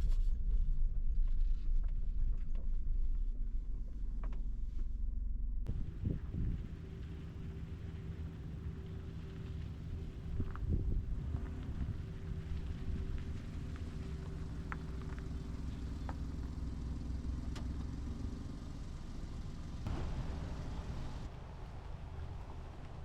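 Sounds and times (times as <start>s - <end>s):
car engine running: 5.7s - 23.0s.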